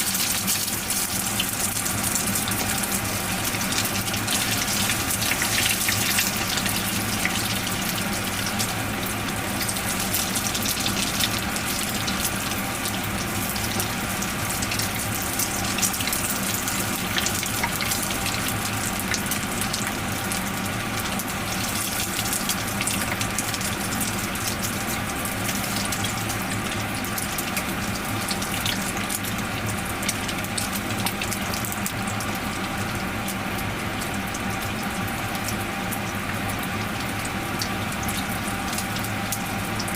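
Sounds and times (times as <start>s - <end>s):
cutlets sizzling in hot oil: 0.0s - 39.9s.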